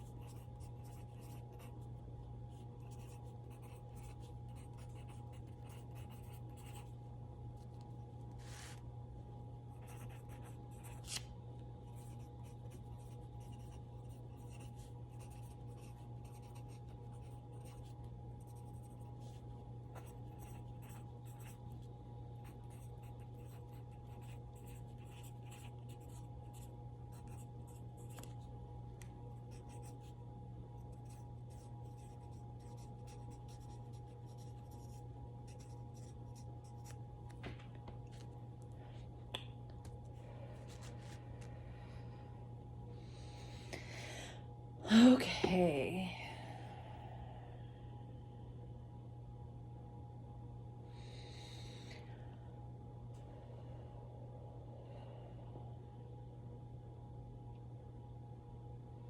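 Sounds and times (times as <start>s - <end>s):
low electrical hum: 0.0s - 59.0s
scratching and rustling on tabletop: 8.2s - 8.8s.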